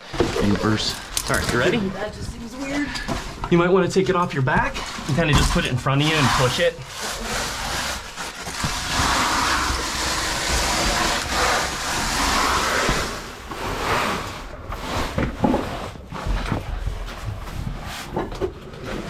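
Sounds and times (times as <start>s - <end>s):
gear dragging on stone: 0.4s - 18.1s.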